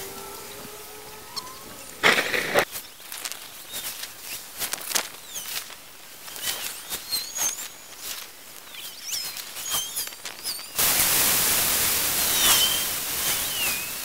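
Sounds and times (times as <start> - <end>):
birds chirping: 0.0 - 10.8
light background hiss: 0.0 - 14.0.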